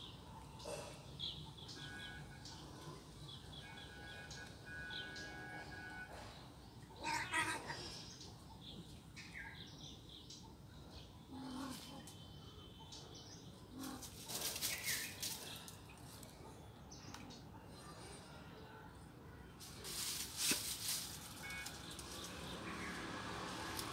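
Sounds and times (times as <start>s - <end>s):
rustling noise: 13.8s - 16.3s, 19.6s - 22.8s.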